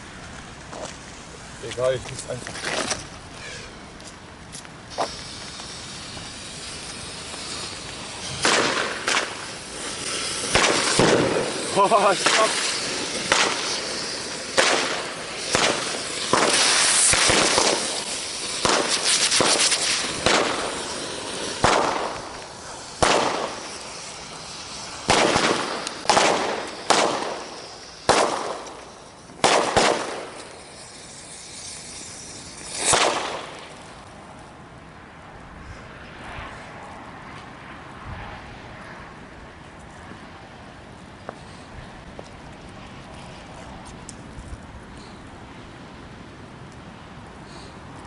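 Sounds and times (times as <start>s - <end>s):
fireworks and firecracker bangs: 4.9s - 34.0s.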